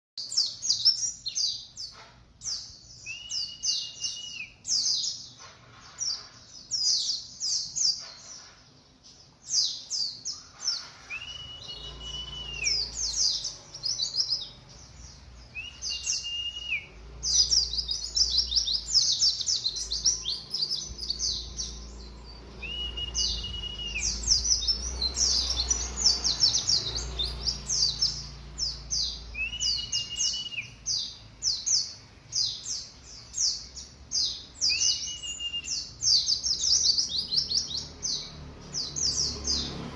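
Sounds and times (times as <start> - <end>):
held level bird whistle: 0.2 - 5.3, 9.5 - 14.6, 15.4 - 37.9
bird rapid high twittering: 9.5 - 39.8.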